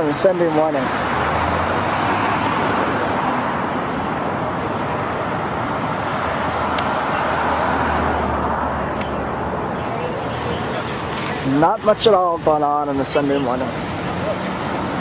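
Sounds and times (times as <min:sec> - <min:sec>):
cars going by: 0:00.0 - 0:15.0.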